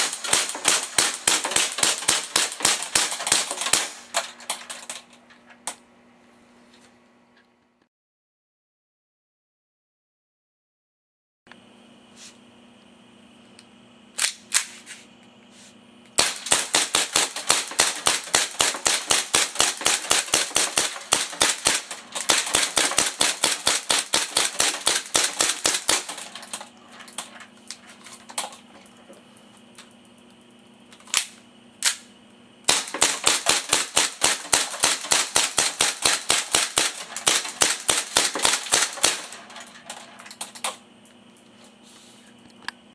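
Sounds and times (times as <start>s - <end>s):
toy gun firing rapid shots: 0.0s - 5.0s, 16.2s - 26.7s, 32.7s - 39.5s.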